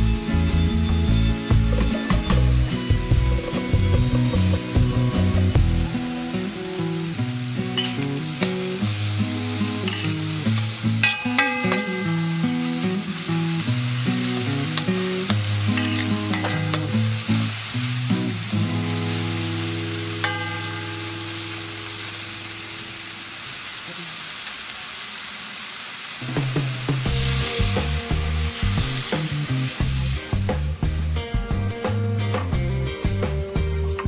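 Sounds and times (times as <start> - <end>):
background music: 0.0 - 22.6, 26.2 - 34.0
meat sizzling in oil: 0.0 - 31.2
spatula stirring and scraping: 9.7 - 11.2, 14.8 - 16.9.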